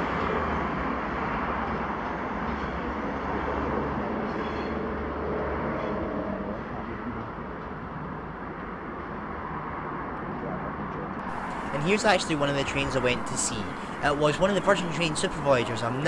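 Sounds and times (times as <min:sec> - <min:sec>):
electric train running: 0:11.3 - 0:16.0.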